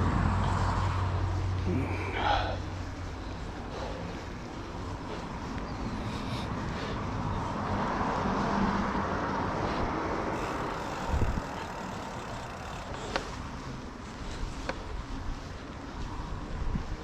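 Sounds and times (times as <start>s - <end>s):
vehicle road noise: 0.0s - 17.0s.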